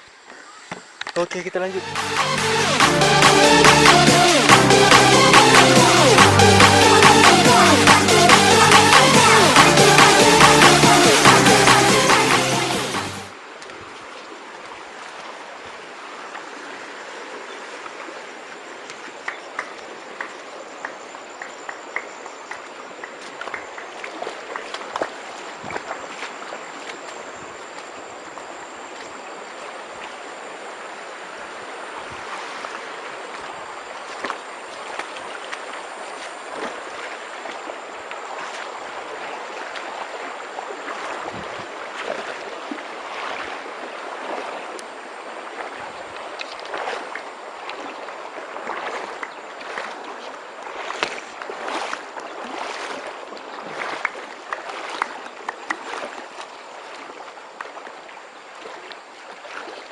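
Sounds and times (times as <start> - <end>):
stream water rushing: 1.0 - 59.9
sharp splashes and knocks: 18.9 - 27.2, 34.0 - 40.2, 40.8 - 44.9, 45.6 - 58.0.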